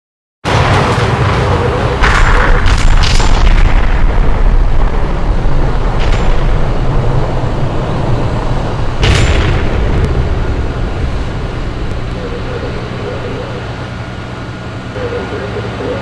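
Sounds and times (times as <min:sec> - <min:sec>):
loud bangs: 0:00.4 - 0:15.8
low rumble of fire: 0:00.4 - 0:16.0.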